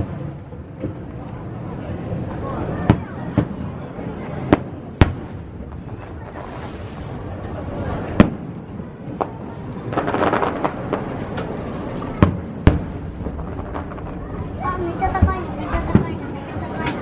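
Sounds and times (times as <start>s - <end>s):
firework bangs: 0.0s - 17.0s
firework crackling: 0.0s - 17.0s.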